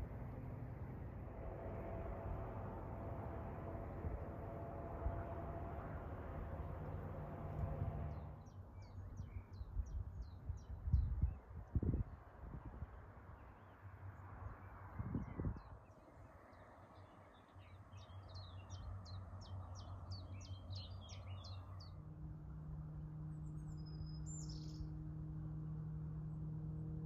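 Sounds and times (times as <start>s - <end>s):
ambient music drone: 0.0s - 8.5s
songbird singing: 7.3s - 12.0s, 14.6s - 22.1s, 23.2s - 25.4s.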